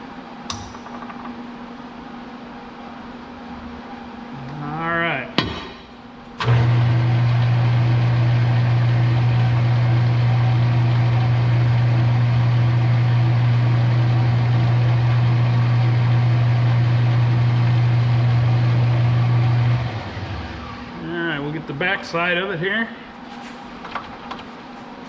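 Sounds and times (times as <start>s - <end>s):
metal lathe humming and spinning down: 6.4s - 21.0s.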